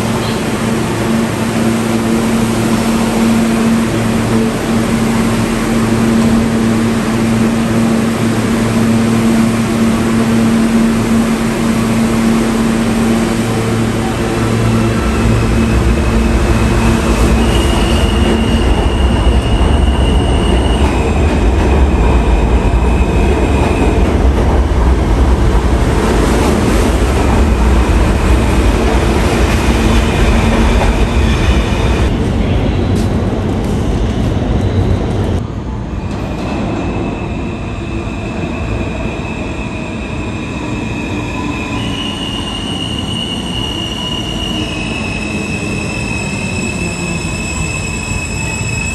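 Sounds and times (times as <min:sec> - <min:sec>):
subway train rumbling: 0:00.0 - 0:48.9.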